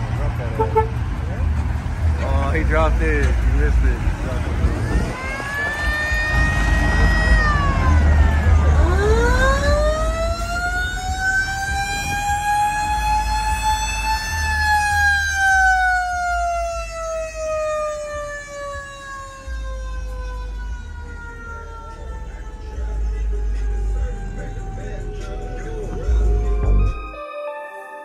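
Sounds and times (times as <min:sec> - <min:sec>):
low rumble: 0:01.0 - 0:15.1, 0:19.3 - 0:27.0
siren wailing: 0:04.6 - 0:27.9.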